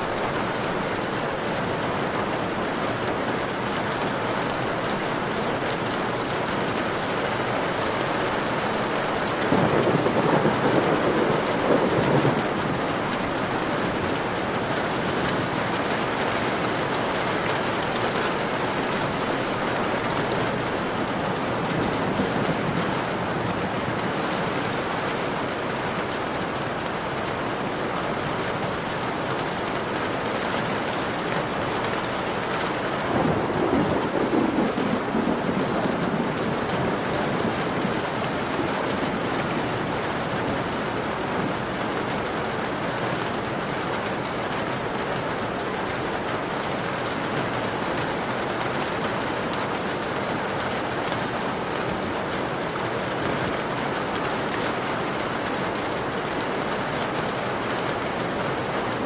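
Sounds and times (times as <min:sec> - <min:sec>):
rain on a window pane: 0:00.0 - 0:59.0
thunder rolling: 0:09.5 - 0:14.6, 0:33.0 - 0:39.4.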